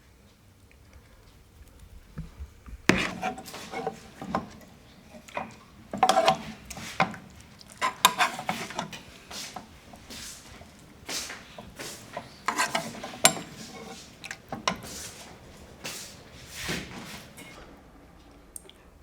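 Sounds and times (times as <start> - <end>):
household knocks and clinks: 2.2 - 17.6.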